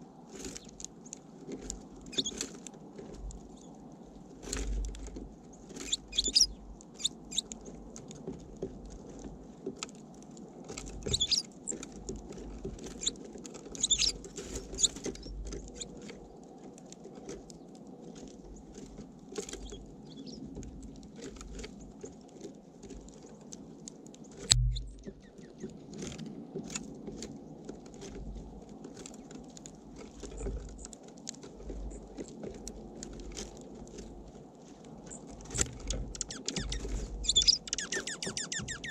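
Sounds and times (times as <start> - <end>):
beaks tapping on seed feeder: 1.6 - 2.4, 5.8 - 8.9, 10.8 - 16.0, 24.4 - 25.7, 35.5 - 38.9
short low rumbles: 24.5 - 25.2.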